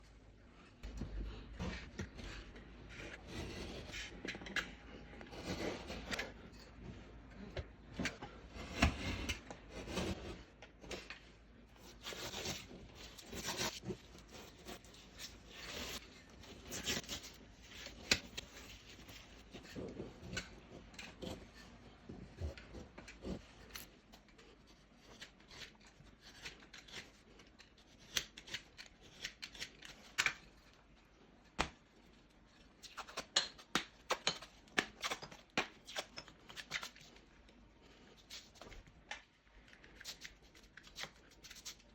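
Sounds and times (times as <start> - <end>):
tools scraping drywall: 1.5 - 6.8.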